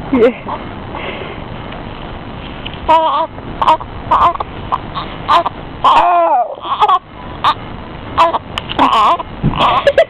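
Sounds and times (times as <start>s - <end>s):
baby fussing and crying: 2.9s - 7.6s, 8.2s - 10.0s.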